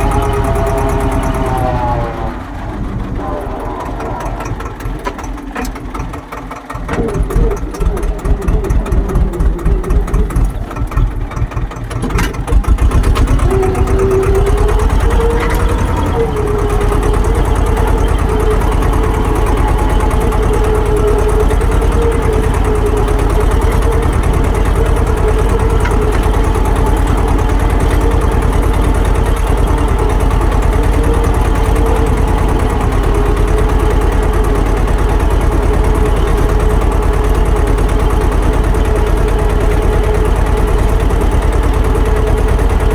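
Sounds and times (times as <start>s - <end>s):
tractor diesel engine chugging: 0.0s - 42.9s.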